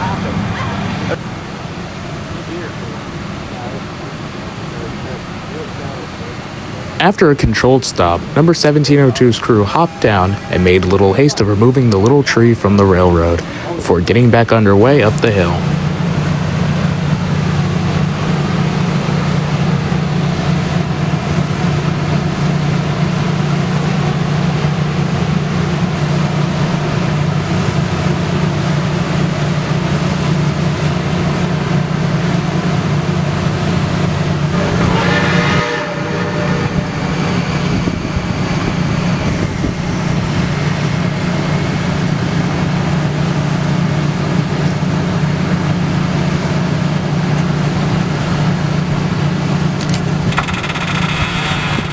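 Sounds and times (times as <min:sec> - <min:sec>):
train running low rumble: 0:00.0 - 0:51.9
train whistle: 0:34.5 - 0:40.3.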